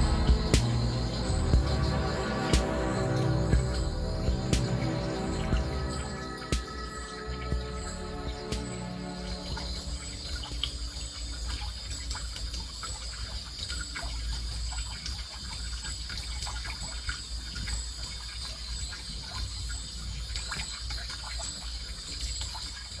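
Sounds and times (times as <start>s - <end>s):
low rumble: 0.0s - 11.4s
high-pitched drone: 0.0s - 11.8s
water trickling and splashing: 0.0s - 23.0s.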